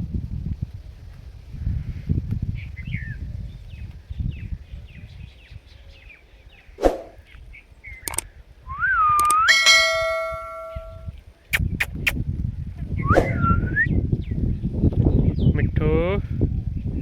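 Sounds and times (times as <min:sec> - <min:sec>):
clicks: 0:08.0 - 0:08.2, 0:09.2 - 0:11.0
rising whistle: 0:08.7 - 0:11.0, 0:13.0 - 0:13.9.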